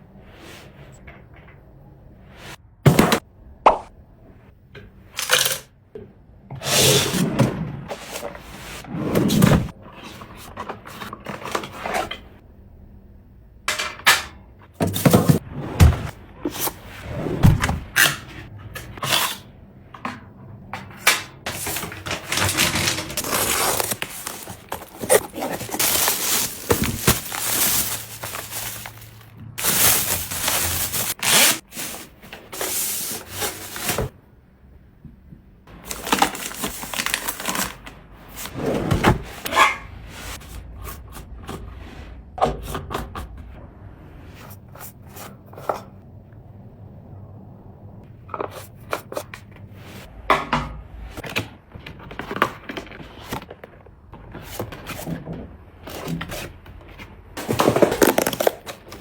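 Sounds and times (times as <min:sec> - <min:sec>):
items set down knocking: 0:20.7 - 0:34.1
rubbing and rustling: 0:21.5 - 0:34.1.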